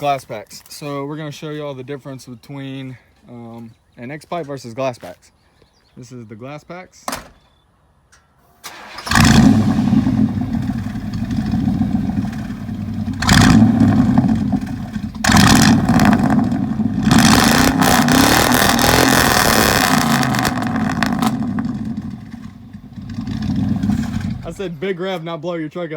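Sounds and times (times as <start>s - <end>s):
car engine starting and revving: 8.6s - 24.8s.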